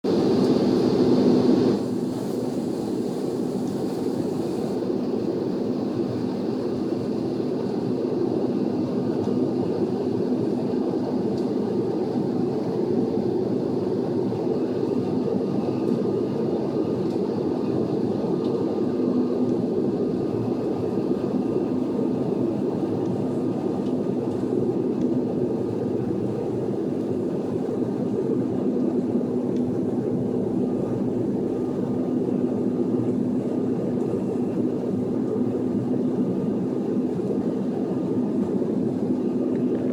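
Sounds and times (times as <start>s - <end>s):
airliner jet engines droning: 0.0s - 39.9s.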